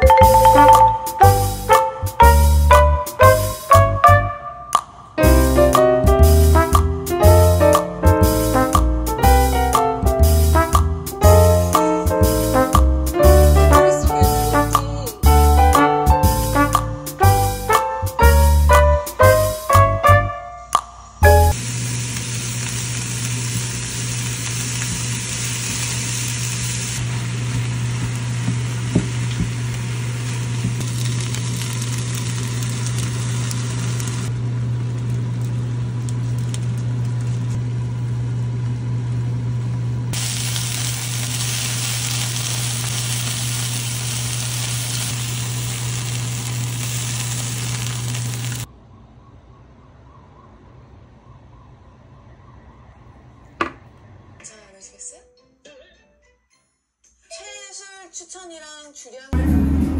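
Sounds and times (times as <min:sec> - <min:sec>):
food sizzling in a frying pan: 0:21.2 - 0:37.6, 0:40.1 - 0:48.7.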